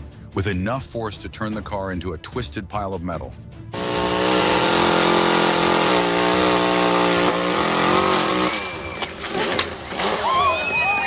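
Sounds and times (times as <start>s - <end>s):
chainsaw running at high speed: 3.7s - 11.0s
sharp cracks: 3.8s - 10.6s.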